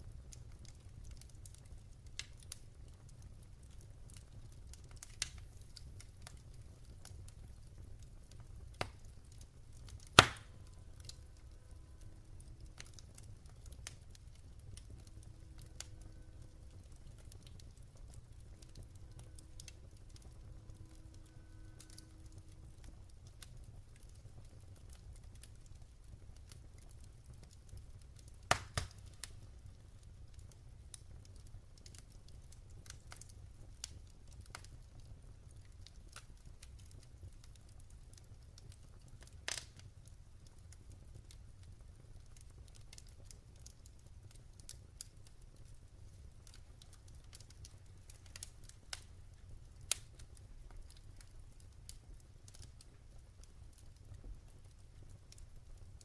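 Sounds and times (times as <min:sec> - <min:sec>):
sharp fire snaps: 0:00.0 - 0:56.0
wood fire crackling: 0:00.0 - 0:56.0.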